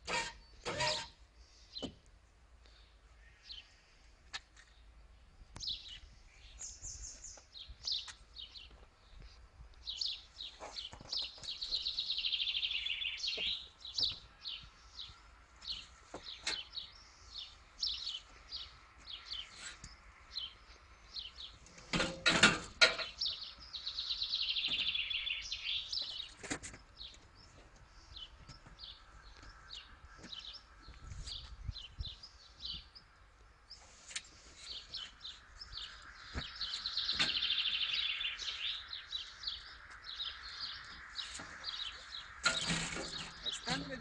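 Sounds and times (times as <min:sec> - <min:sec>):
small songbirds chirping: 0:00.0 - 0:22.2, 0:22.8 - 0:44.0
long rapid trilled birdsong: 0:09.8 - 0:21.9, 0:22.8 - 0:44.0.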